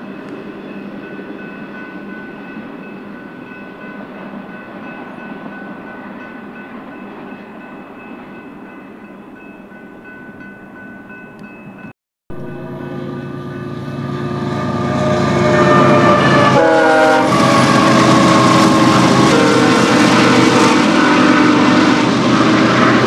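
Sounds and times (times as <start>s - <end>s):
freight train cars rolling: 11.1s - 23.0s.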